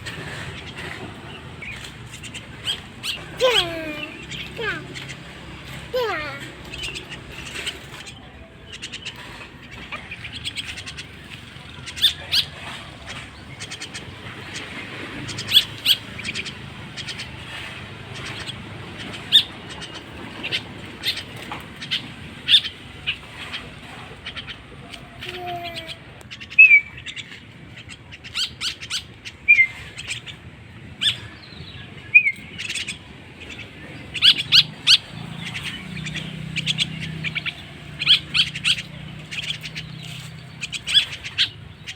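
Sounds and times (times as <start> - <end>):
bird chick chirping: 0.1 - 41.9.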